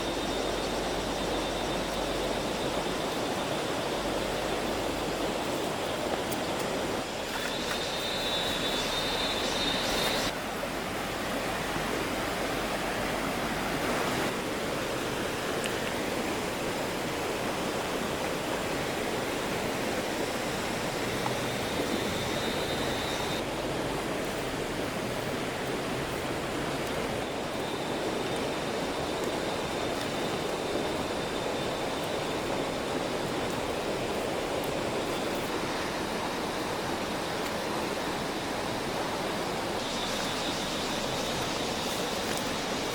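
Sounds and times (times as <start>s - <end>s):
faint high steady tone: 6.3s - 10.4s, 19.4s - 23.4s, 39.6s - 42.9s.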